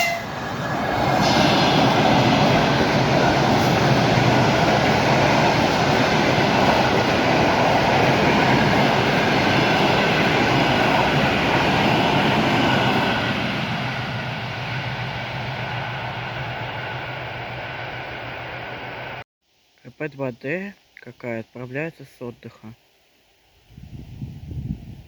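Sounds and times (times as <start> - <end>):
train passing on rails: 0.0 - 19.2.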